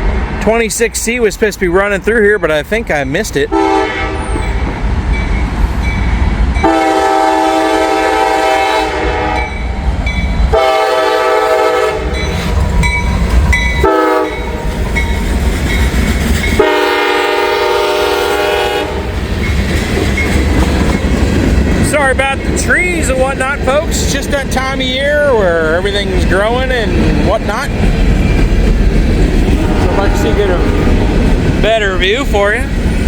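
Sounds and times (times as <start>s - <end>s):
locomotive rumble: 0.0s - 33.0s
locomotive air horn blasts: 3.5s - 4.5s, 6.6s - 9.6s, 10.5s - 12.2s, 13.8s - 14.6s, 16.6s - 19.1s, 29.6s - 31.3s
train wheel clatter: 12.0s - 33.0s.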